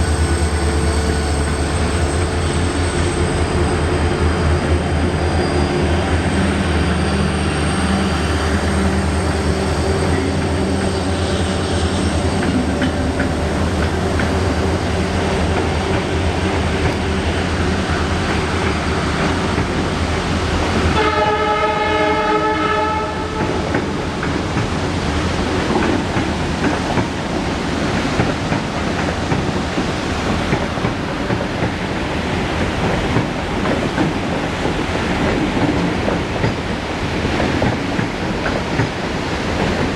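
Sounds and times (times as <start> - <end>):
diesel locomotive engines droning: 0.0 - 39.9
locomotive horn: 20.9 - 23.7.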